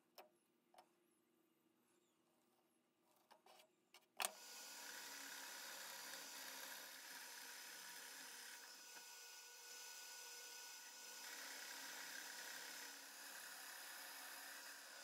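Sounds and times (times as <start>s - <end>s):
power tool whirring: 4.2s - 15.0s.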